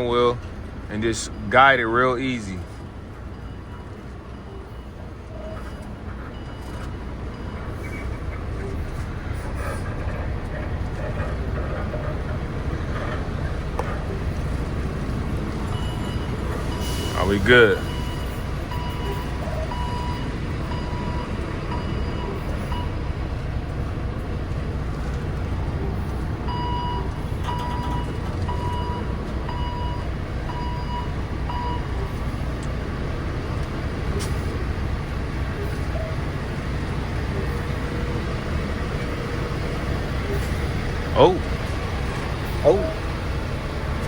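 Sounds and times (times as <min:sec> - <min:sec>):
diesel truck engine running: 0:00.0 - 0:44.0
reverse alarm beeping: 0:15.6 - 0:23.2, 0:26.5 - 0:32.4.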